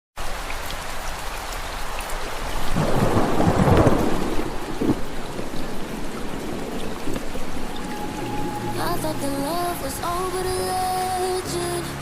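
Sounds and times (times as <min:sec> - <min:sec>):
heavy rain: 0:00.2 - 0:12.0
thunder rolling: 0:02.7 - 0:08.9.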